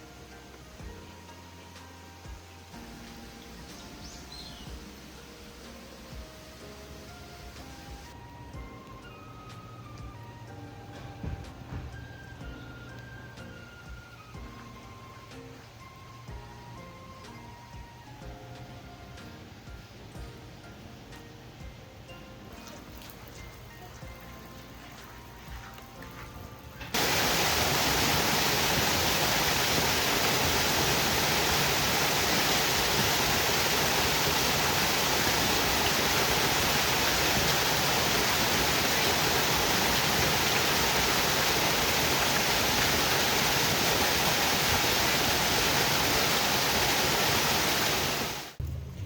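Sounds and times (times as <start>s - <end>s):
heavy rain pouring: 0.0s - 20.4s, 26.9s - 48.9s.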